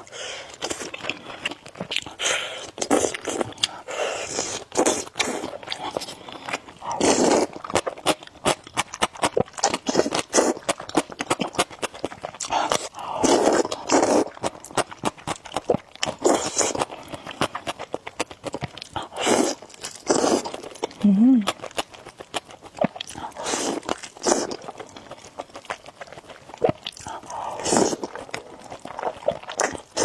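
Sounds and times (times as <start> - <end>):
noodle slurping: 0.0 - 8.2, 9.1 - 14.8, 19.0 - 20.7, 23.2 - 25.2, 26.6 - 30.0
wet mouth clicks and chewing: 0.4 - 30.0.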